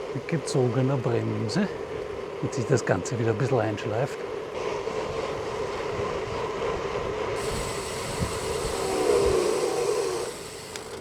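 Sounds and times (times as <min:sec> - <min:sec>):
disc brake rubbing hum: 0:07.4 - 0:11.0.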